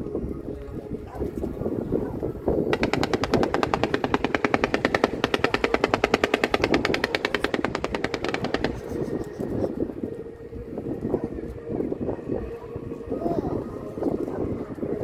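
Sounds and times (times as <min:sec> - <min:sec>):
fireworks crackling sharp bangs: 0:02.7 - 0:09.6.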